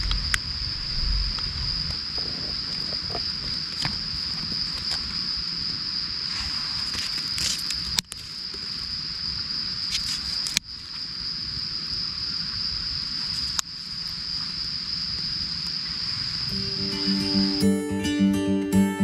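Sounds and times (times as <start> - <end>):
crickets chirping: 0.0 - 19.0
soft crackles: 6.3 - 8.9.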